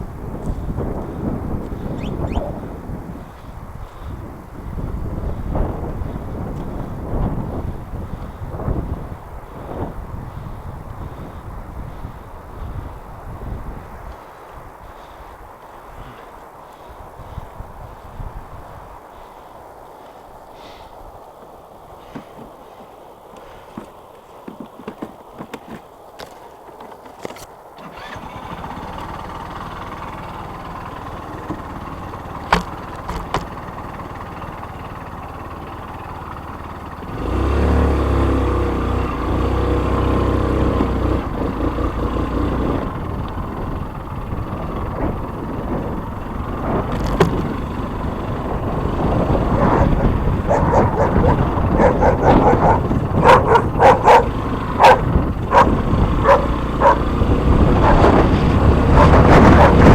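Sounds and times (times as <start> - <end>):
vehicle low rumble: 0.0 - 59.9
dog barking: 49.5 - 57.1, 57.8 - 58.2, 58.9 - 59.9.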